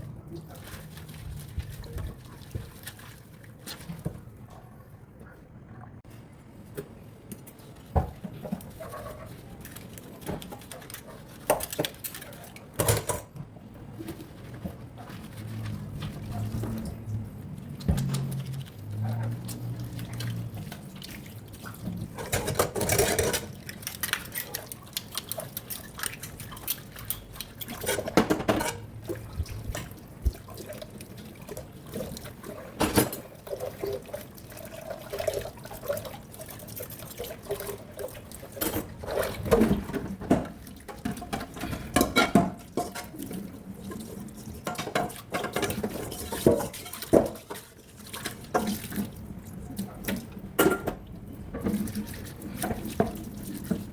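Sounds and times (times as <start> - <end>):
water splashing in a sink: 0.0 - 4.8, 6.8 - 53.9
kitchenware clinking: 12.8 - 13.4, 27.2 - 28.9, 50.6 - 51.0.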